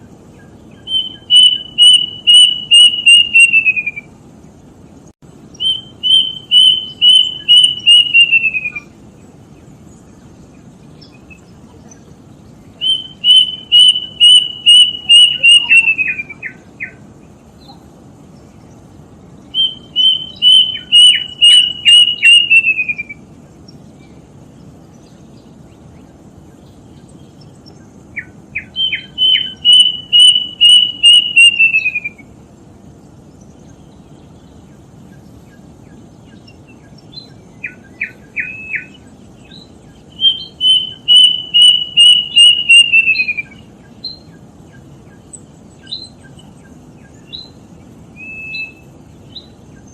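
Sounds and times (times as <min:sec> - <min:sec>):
cuckoo whistling song: 0:00.4 - 0:04.1, 0:05.6 - 0:09.0, 0:12.8 - 0:17.0, 0:19.5 - 0:23.3, 0:27.7 - 0:32.3, 0:36.3 - 0:44.4, 0:45.8 - 0:49.9.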